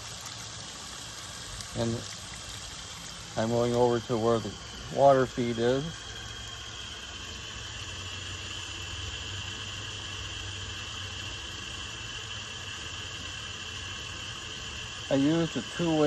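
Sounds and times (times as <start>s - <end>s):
high-pitched insect trilling: 0.6s - 16.0s.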